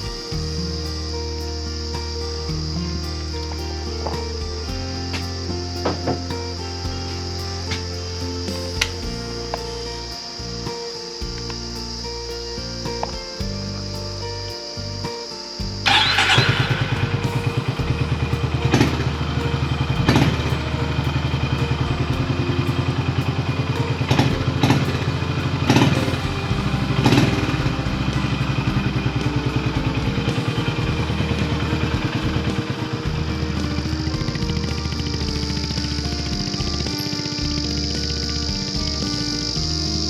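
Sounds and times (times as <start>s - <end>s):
motorcycle engine starting and idling: 15.0s - 40.0s.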